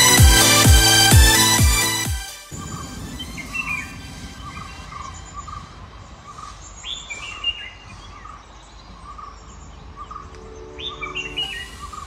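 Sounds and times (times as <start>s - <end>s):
bird chirping high and quick: 2.5s - 12.0s.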